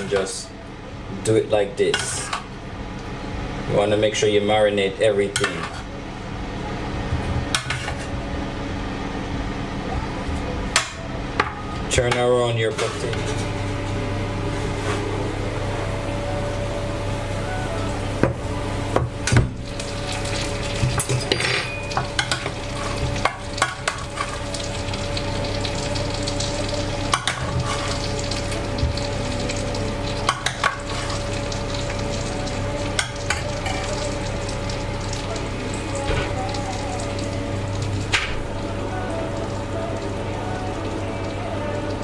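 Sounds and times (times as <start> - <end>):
roasting tray sizzling: 0.0 - 42.0
steady hum: 0.0 - 42.0.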